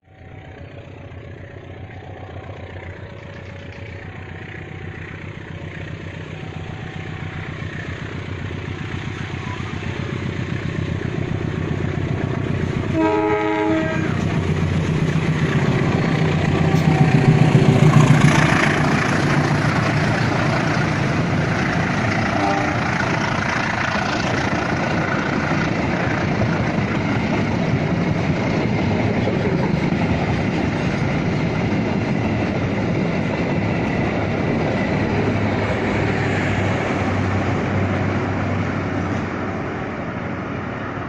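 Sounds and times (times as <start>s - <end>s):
locomotive engine drone: 0.0s - 41.0s
train horn blast: 12.9s - 14.4s, 22.3s - 23.0s.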